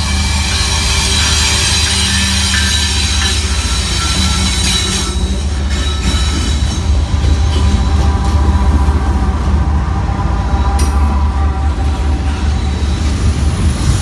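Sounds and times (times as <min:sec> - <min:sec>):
locomotive engine drone: 0:00.0 - 0:14.0
wheels rumbling on rail: 0:00.0 - 0:14.0
thin high squeal: 0:00.4 - 0:06.7.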